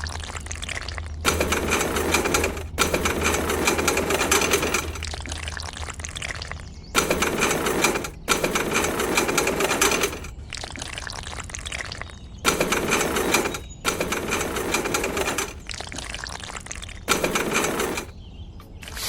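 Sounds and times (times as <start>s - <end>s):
electric motor rattling buzz: 1.3s - 5.5s, 7.0s - 10.4s, 12.5s - 16.1s, 16.7s - 18.1s.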